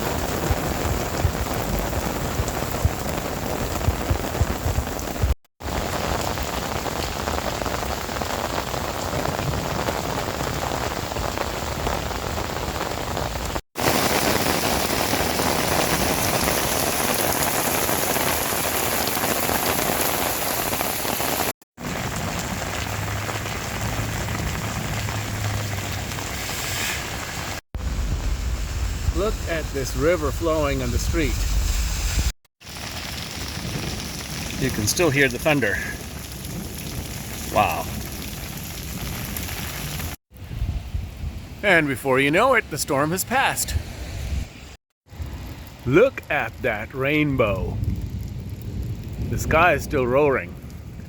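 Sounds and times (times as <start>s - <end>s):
heavy rain falling: 0.0s - 31.3s, 32.6s - 40.2s.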